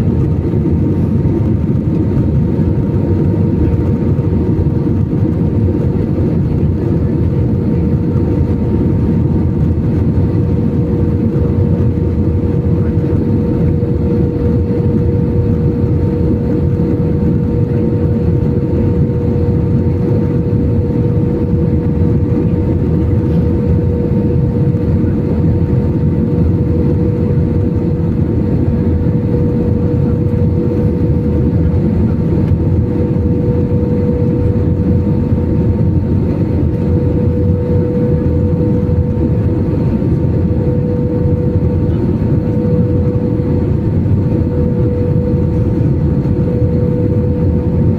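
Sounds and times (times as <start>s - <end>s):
airliner engine drone: 0.0s - 47.9s.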